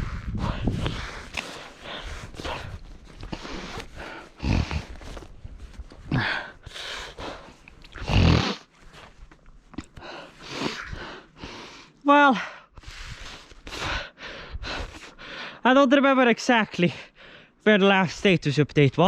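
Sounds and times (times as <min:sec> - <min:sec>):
person breathing hard: 0:00.0 - 0:05.3, 0:05.9 - 0:08.6, 0:09.9 - 0:15.6, 0:17.0 - 0:17.6
snow crunching and scraping: 0:00.6 - 0:09.3
person grunting: 0:06.1 - 0:06.6.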